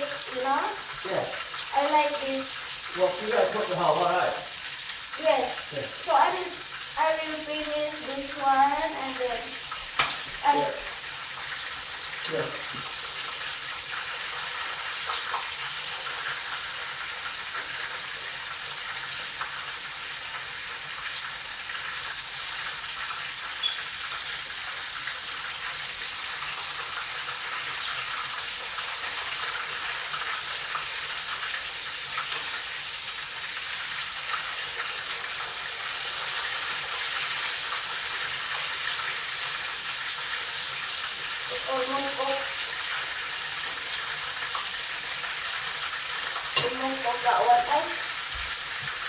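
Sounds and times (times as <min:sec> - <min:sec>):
meat sizzling in hot oil: 0:00.0 - 0:49.0.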